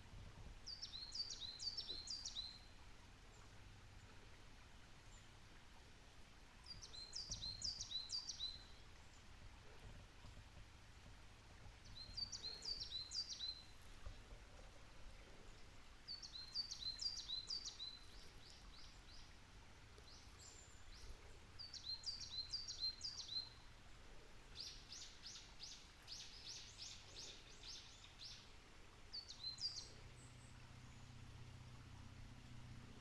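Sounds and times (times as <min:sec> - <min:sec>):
small bird singing: 0:00.7 - 0:02.7, 0:06.7 - 0:09.1, 0:11.8 - 0:13.8, 0:16.1 - 0:19.3, 0:20.0 - 0:23.6, 0:24.6 - 0:28.5, 0:29.1 - 0:31.2.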